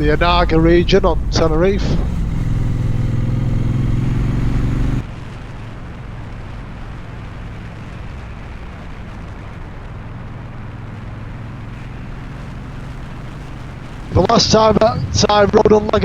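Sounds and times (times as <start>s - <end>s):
wind rush: 0.0s - 11.7s
motorcycle engine running: 0.0s - 16.0s.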